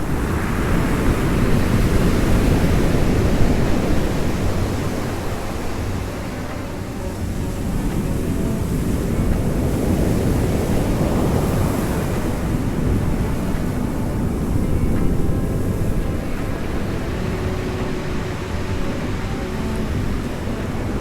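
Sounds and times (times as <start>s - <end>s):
sea surf washing onto shore: 0.0s - 21.0s.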